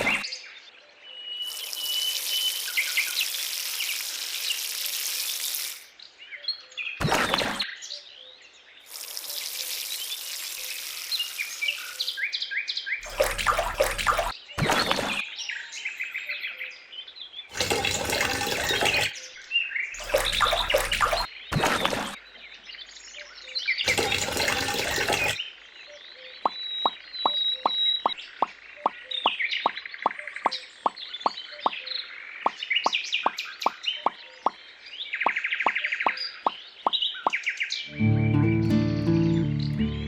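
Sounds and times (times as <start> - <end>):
running water: 0.0 - 0.2, 1.5 - 5.9, 8.9 - 12.1, 13.0 - 15.2, 17.5 - 19.2, 20.0 - 22.2, 23.9 - 25.4
birds chirping: 19.9 - 21.3.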